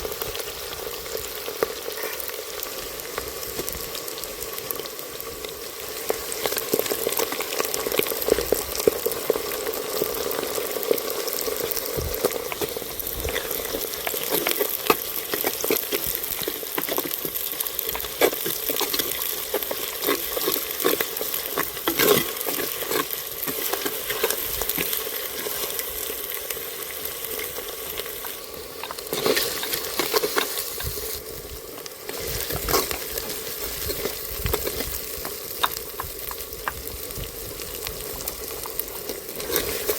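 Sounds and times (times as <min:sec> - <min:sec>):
chicken sizzling in a pot: 0:00.0 - 0:39.9
scraping and knocking on pot: 0:12.0 - 0:25.0.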